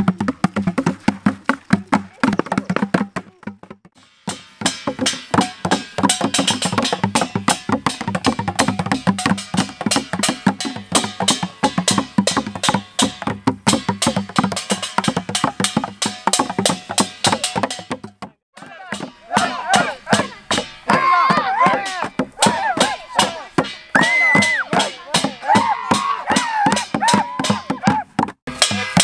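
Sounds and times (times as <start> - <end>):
drumming on plastic containers: 0.0 - 29.0.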